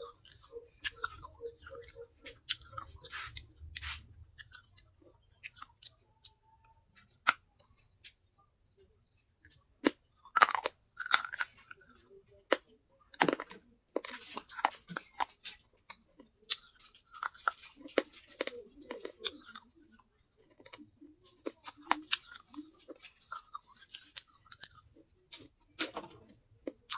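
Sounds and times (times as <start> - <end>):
baked clay being chewed: 0.0 - 26.9.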